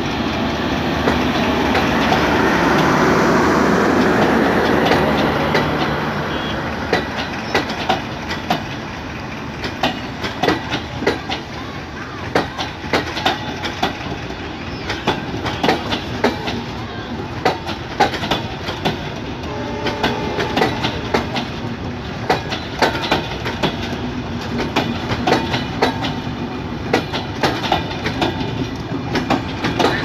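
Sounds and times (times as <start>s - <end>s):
rumble of wheels on rails: 0.0s - 30.0s
wheels clicking over rail joints: 6.8s - 30.0s.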